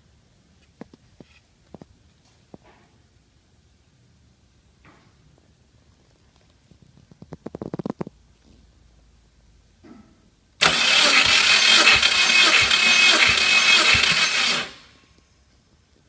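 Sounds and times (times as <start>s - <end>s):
starter motor cranking engine: 10.6s - 15.0s.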